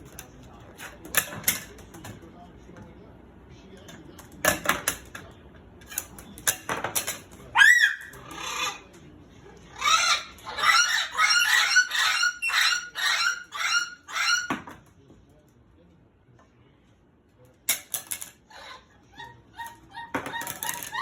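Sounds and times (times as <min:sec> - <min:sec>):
cockatoo squawking: 0:07.5 - 0:08.9, 0:09.7 - 0:14.7, 0:18.5 - 0:21.0.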